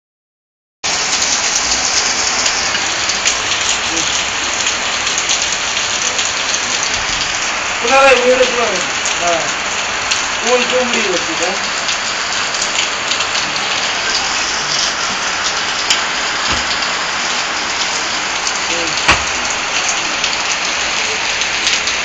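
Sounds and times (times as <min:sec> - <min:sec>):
heavy rain: 0:00.8 - 0:22.0
loud knock: 0:16.4 - 0:16.9, 0:19.1 - 0:19.5.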